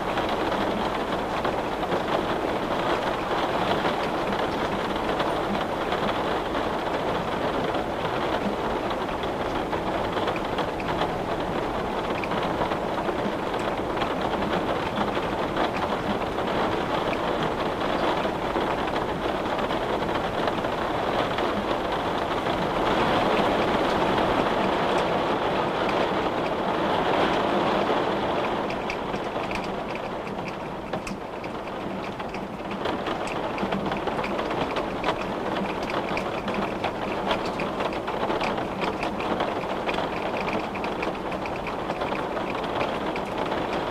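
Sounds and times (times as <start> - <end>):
rain pattering: 0.0 - 43.9.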